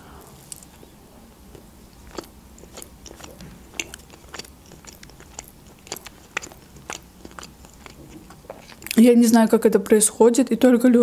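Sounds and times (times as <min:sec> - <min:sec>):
close chewing mouth clicks: 0:00.3 - 0:09.0.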